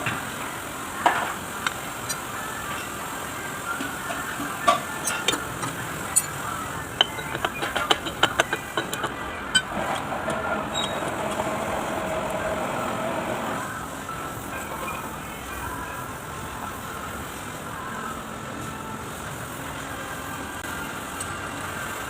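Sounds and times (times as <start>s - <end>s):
engine running: 5.1s - 14.0s.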